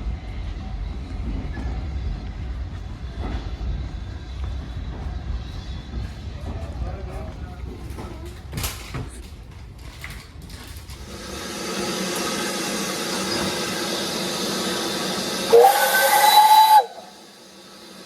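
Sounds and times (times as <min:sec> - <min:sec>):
steam locomotive hissing steam: 0:11.0 - 0:18.0
steam whistle: 0:13.1 - 0:17.6.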